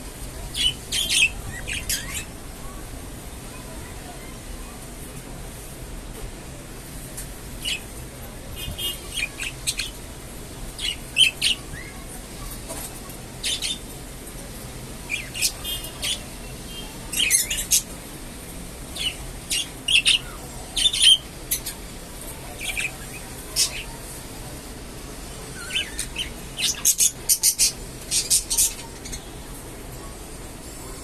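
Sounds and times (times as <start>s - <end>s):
budgerigars chirping and warbling: 0.5s - 2.3s, 8.8s - 10.0s, 10.8s - 11.6s, 13.4s - 13.8s, 15.1s - 17.9s, 19.0s - 21.8s, 22.6s - 24.0s, 25.6s - 29.3s.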